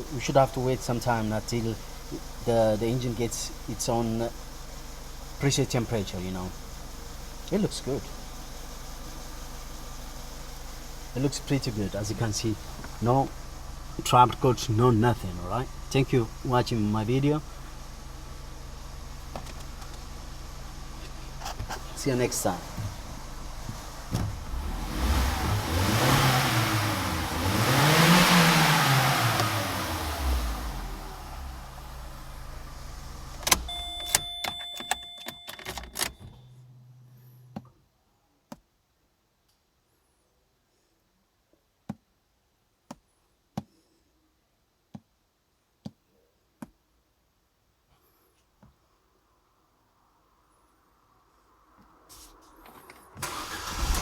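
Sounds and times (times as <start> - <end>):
car engine revving: 4.0 - 33.7, 53.2 - 54.0.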